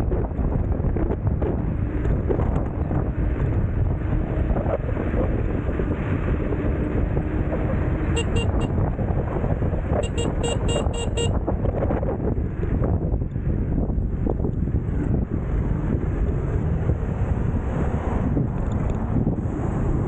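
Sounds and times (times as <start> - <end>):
wind buffeting microphone: 0.0 - 20.0
electronic scooter horn beeping: 8.0 - 8.8, 10.0 - 11.4.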